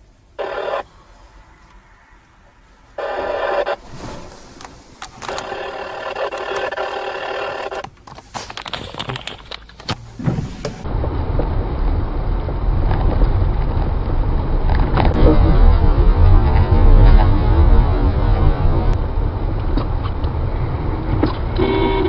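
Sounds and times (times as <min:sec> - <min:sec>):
steady pitched tone: 0:00.0 - 0:07.8
car driving with road noise: 0:00.0 - 0:22.0.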